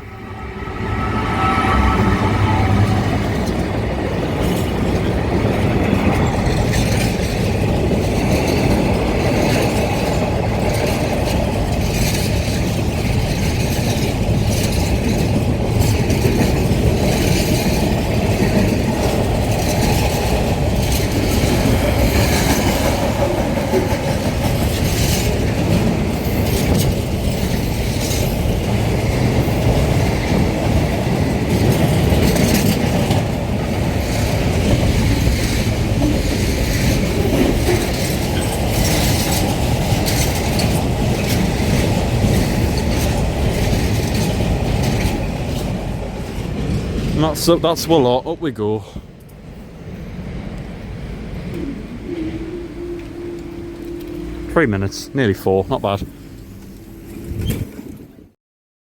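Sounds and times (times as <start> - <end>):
freight train rumbling past: 0.0 - 58.4
wheels clicking over rails: 4.0 - 47.2.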